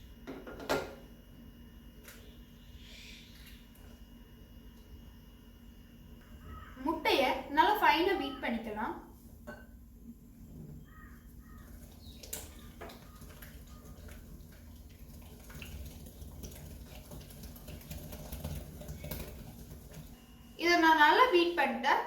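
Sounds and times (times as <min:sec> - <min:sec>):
beating egg in a mixing bowl: 0:11.2 - 0:20.2.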